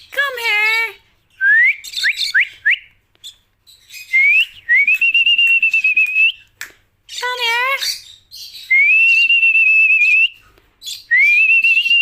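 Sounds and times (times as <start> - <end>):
person whistling rising whistles: 4.2 - 6.4.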